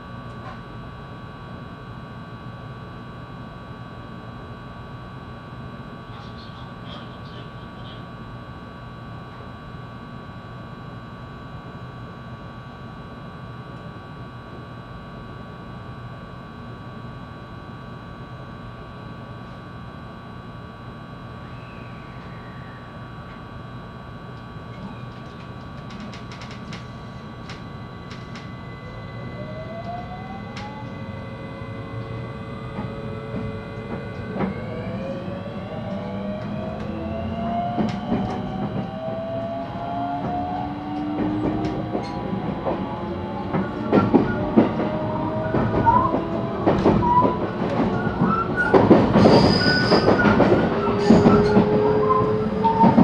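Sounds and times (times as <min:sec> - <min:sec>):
electric train motors whining: 0:24.3 - 0:53.0
rail joint clicks: 0:24.7 - 0:28.5, 0:37.8 - 0:38.9, 0:41.0 - 0:53.0.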